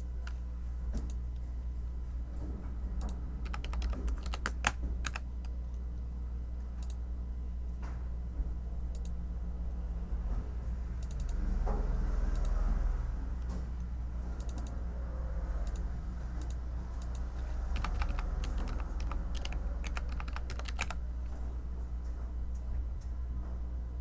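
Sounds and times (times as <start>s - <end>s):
steady low hum: 0.0s - 24.0s
computer keyboard typing: 3.0s - 5.5s, 14.4s - 14.7s, 16.4s - 21.0s.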